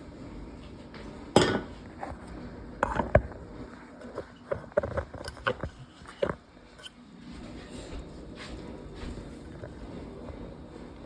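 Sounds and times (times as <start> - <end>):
clicks and knocks of objects handled: 4.0 - 6.9.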